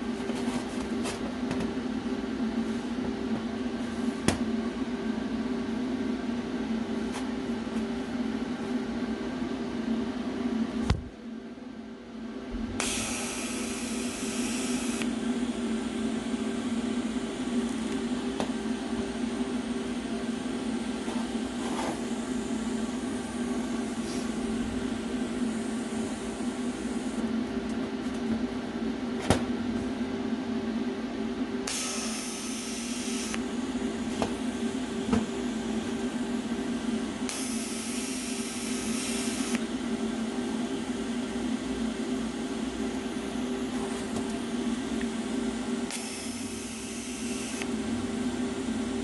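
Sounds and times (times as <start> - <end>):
welder humming: 12.8 - 27.3, 31.6 - 39.7, 45.8 - 49.0.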